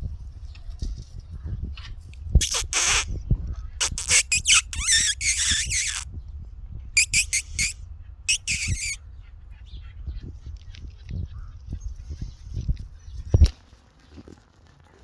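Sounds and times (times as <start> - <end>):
puppies squealing: 2.4 - 3.1, 3.8 - 6.0, 7.0 - 9.0.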